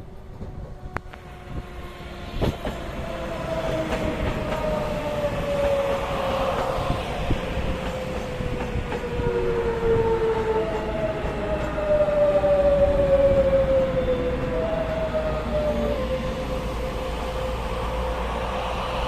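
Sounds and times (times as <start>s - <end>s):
falling train whine: 0.0s - 19.0s
train running past: 0.0s - 19.0s.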